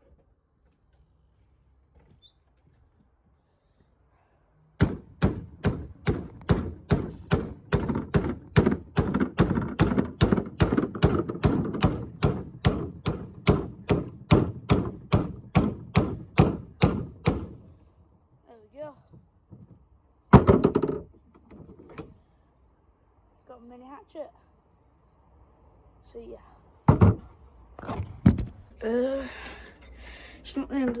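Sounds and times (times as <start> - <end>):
hammer striking: 4.8 - 17.6.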